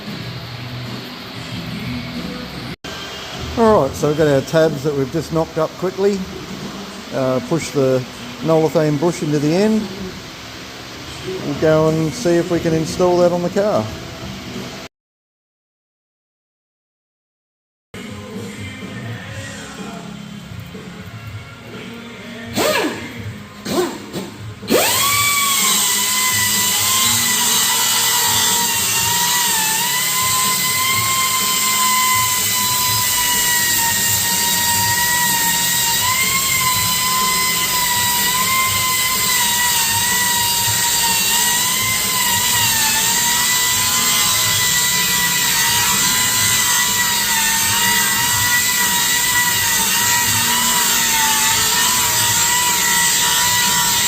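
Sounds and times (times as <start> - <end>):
electric power tool whining: 22.6 - 54.0.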